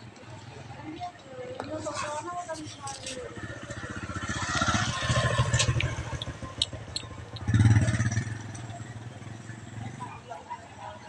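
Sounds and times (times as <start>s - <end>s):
motorcycle engine running: 3.1s - 10.3s.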